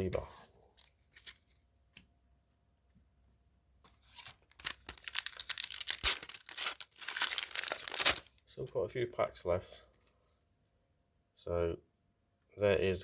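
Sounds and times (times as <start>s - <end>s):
card pack wrapper tearing: 4.1s - 8.4s.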